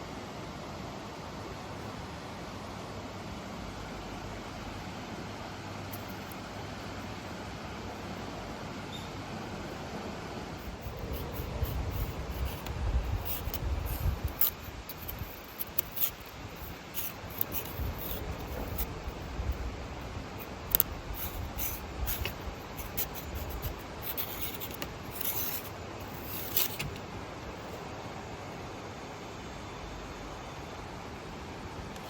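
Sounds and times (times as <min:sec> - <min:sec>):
sharp ticks: 0:10.6 - 0:19.6, 0:20.4 - 0:27.0
twigs rustling and scraping: 0:10.6 - 0:27.0.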